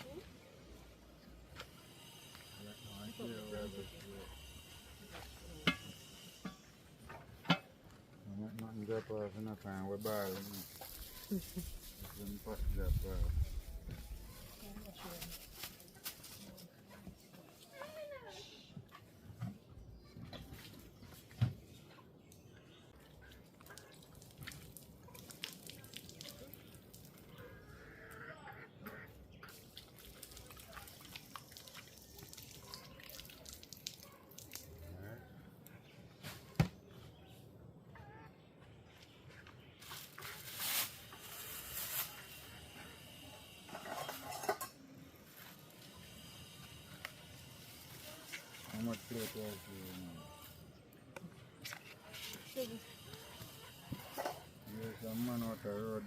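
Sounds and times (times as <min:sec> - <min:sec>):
utensils scraping and clinking on dishes: 0:43.6 - 0:44.9.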